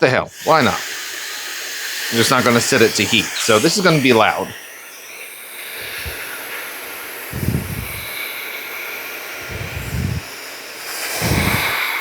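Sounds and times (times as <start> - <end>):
hairdryer blowing air: 0.3 - 12.0
low rumbles: 7.4 - 8.0, 9.4 - 10.3.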